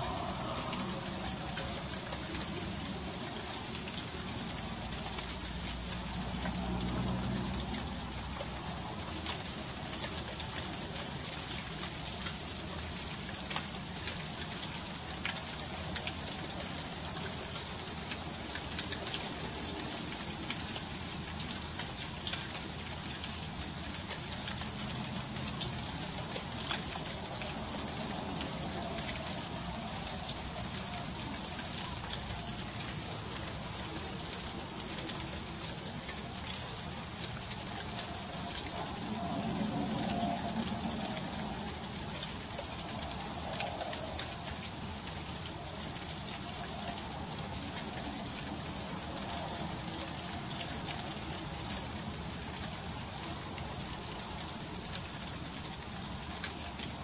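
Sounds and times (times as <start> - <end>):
freezing rain hissing: 0.0 - 57.0.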